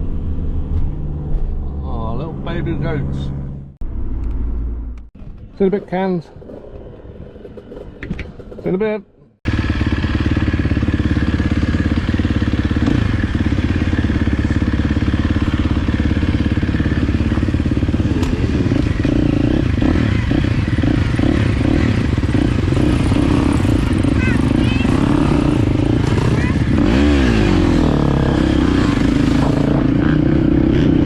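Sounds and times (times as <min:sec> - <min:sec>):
motocross bike engine running: 0:09.5 - 0:31.0.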